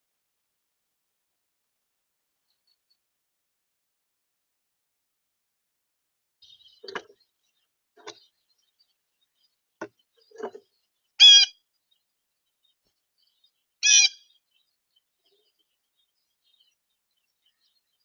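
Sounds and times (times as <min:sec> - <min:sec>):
bird calls: 0:06.4 - 0:12.0, 0:12.6 - 0:18.0.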